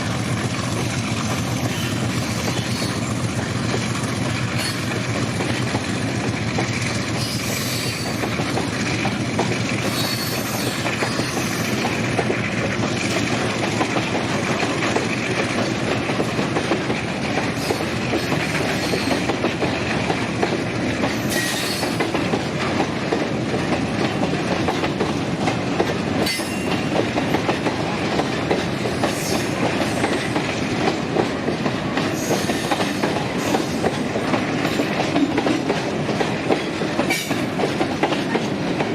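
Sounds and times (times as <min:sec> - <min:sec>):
clickety-clack of rail joints: 0:00.0 - 0:38.9
train wheels rumbling on rails: 0:00.0 - 0:38.9
wheel squeals: 0:09.9 - 0:11.8.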